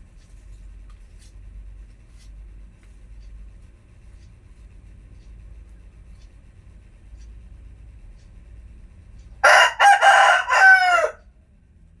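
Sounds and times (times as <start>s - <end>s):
rooster crowing: 9.4s - 11.2s.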